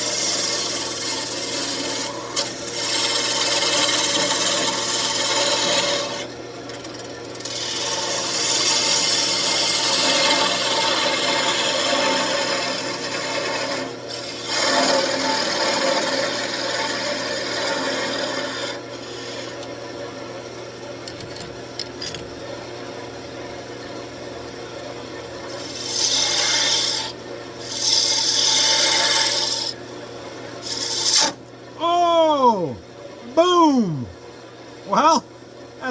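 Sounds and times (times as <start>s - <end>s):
tool scraping spinning wood: 0.0s - 6.3s
wood lathe motor hum: 0.2s - 6.3s, 7.4s - 19.7s, 25.6s - 29.7s.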